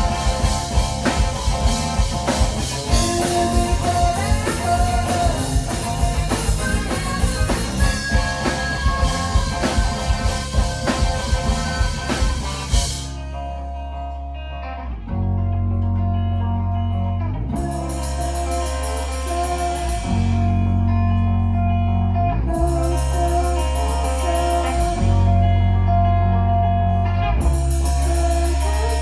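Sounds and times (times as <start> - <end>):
drums and cymbals: 0.0 - 13.2, 17.6 - 20.6, 22.6 - 25.2, 27.4 - 29.0
electric guitar notes ringing: 0.0 - 29.0
live rock band playing: 0.0 - 29.0.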